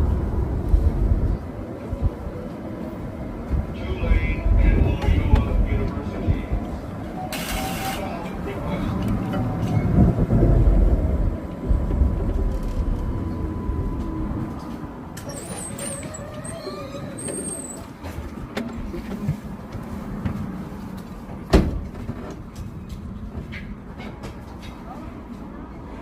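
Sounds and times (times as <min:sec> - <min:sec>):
streetcar rumbling on rails: 0:00.0 - 0:26.0
high squeal: 0:15.2 - 0:17.9.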